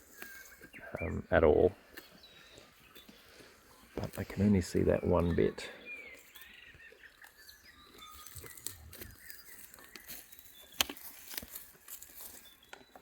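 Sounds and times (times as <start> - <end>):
faint birdsong: 0.0 - 13.0
sheep tearing grass: 7.0 - 13.0.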